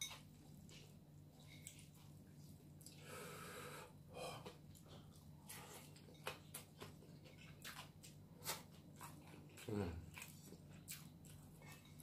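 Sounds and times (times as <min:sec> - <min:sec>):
chewing crispy fried chicken: 0:04.4 - 0:12.0.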